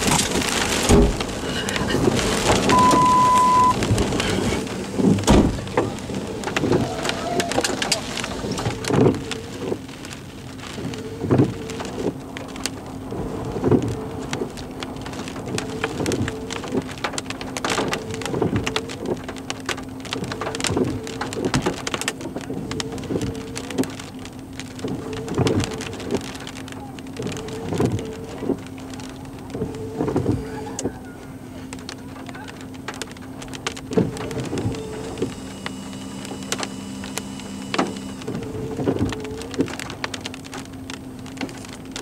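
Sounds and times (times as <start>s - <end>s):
rain pattering on a car: 0.0s - 42.0s
regular thump: 5.0s - 5.9s
steady hum: 32.8s - 42.0s.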